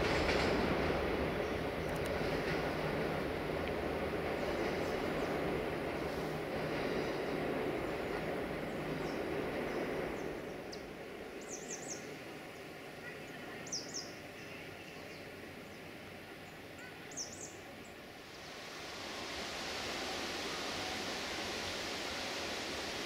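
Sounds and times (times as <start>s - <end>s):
high hiss: 0.0s - 13.0s, 16.6s - 23.0s
steady outdoor hiss: 0.0s - 23.0s
small birds chirping: 7.8s - 18.0s.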